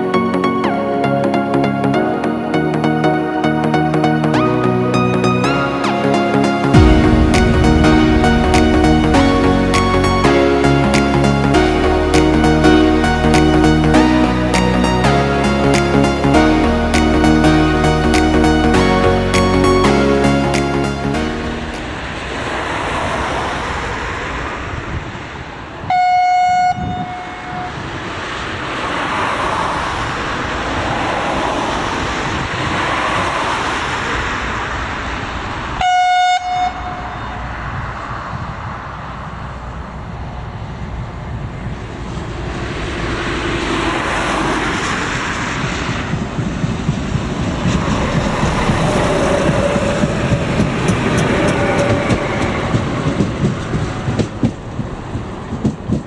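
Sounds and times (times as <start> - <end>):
train rumbling: 2.9 - 56.0
train horn blasts: 25.9 - 27.9, 35.8 - 37.6
wheels clattering on rails: 41.8 - 56.0.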